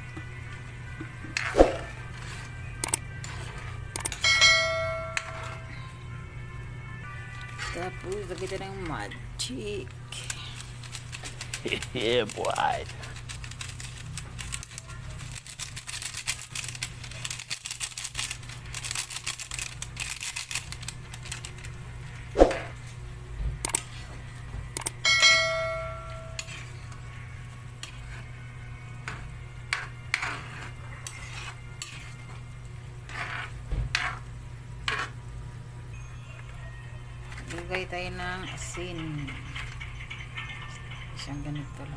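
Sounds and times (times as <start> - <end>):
low hum: 20.8 - 33.3
metal spoon scraping in pot: 29.1 - 32.4, 33.0 - 35.2.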